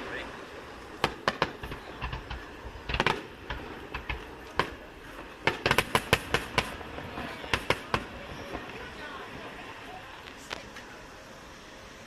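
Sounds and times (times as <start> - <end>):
fireworks bangs and crackles: 0.0 - 10.9.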